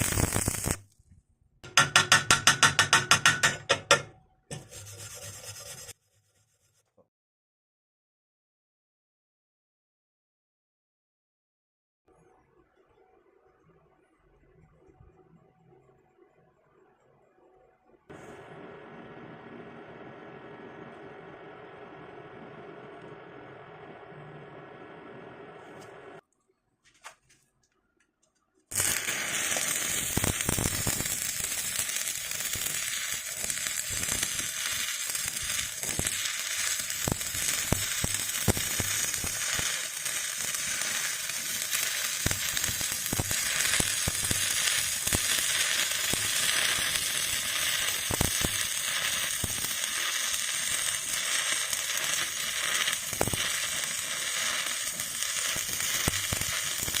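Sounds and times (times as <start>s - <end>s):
electric arc welding crackling: 0.0s - 1.0s, 28.7s - 57.0s.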